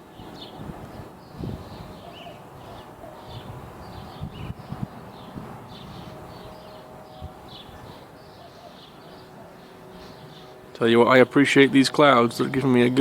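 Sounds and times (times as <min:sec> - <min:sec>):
small birds chirping: 0:00.0 - 0:11.4
wind gusts on microphone: 0:00.1 - 0:08.3.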